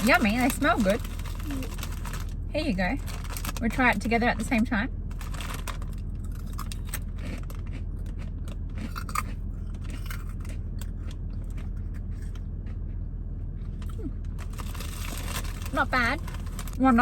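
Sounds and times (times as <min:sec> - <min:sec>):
chewing crunchy snack: 0:00.0 - 0:02.4, 0:05.1 - 0:13.0, 0:13.6 - 0:16.8.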